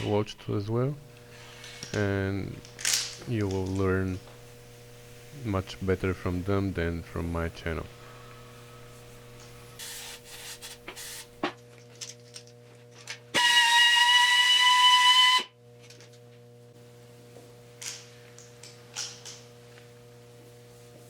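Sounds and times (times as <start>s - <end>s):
electrical hum: 0.0s - 21.0s
power drill high whine: 13.3s - 15.5s.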